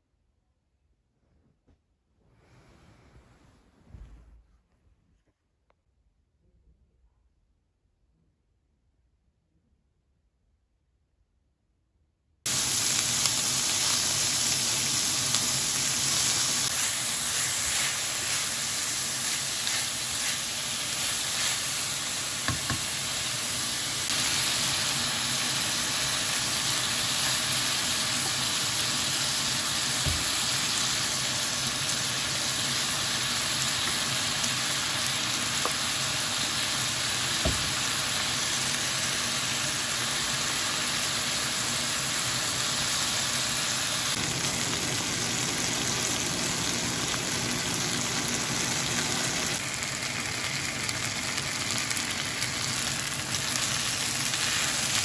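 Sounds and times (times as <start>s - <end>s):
vegetables sizzling in a wok: 12.5s - 55.0s.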